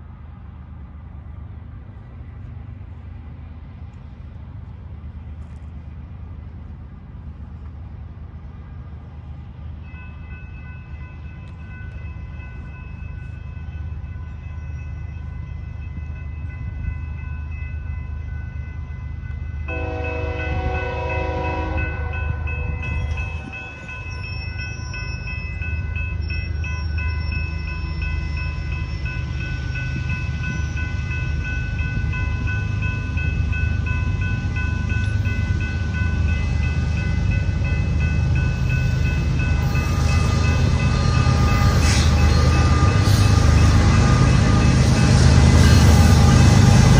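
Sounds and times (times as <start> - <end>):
diesel locomotive rumble: 0.0 - 46.9
high ringing tones: 9.9 - 46.9
train horn blast: 19.7 - 23.8.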